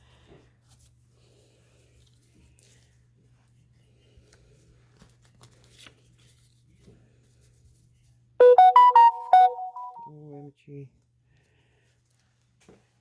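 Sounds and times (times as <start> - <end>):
phone alert melody: 8.4 - 10.1.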